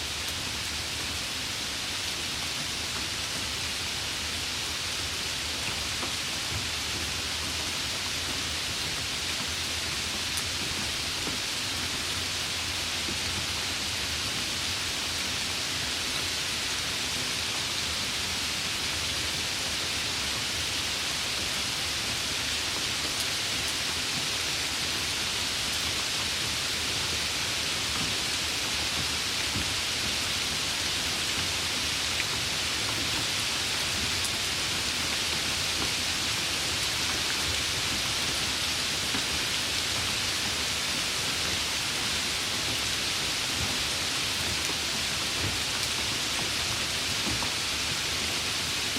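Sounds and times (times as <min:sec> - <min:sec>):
steady rainfall: 0:00.0 - 0:48.9.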